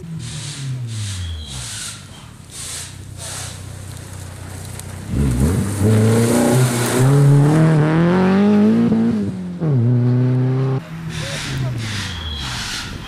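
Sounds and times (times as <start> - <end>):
rally car engine accelerating: 0.0 - 13.0.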